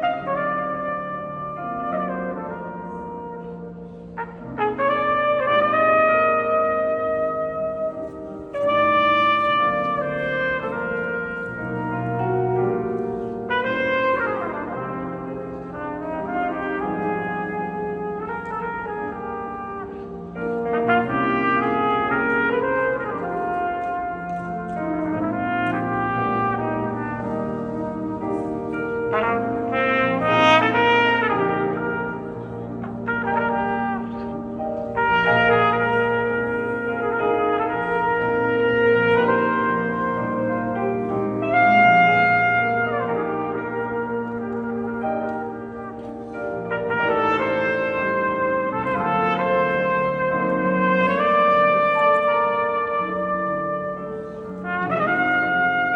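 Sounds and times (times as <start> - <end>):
low-pitched accompaniment: 0.0 - 55.9
lower brass parts: 0.0 - 55.9
trumpet playing slow melody: 0.0 - 55.9.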